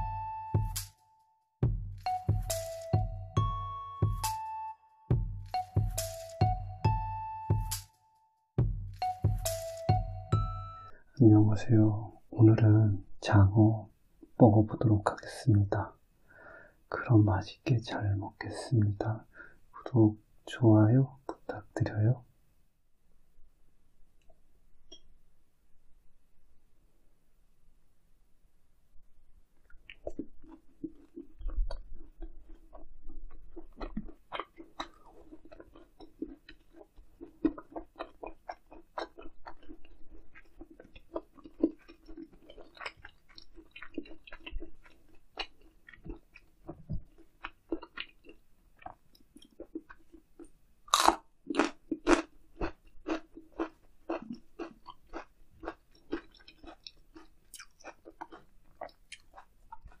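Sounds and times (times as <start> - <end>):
wet mouth clicks: 29.6 - 31.9
chewing and crunching food: 29.6 - 60.0.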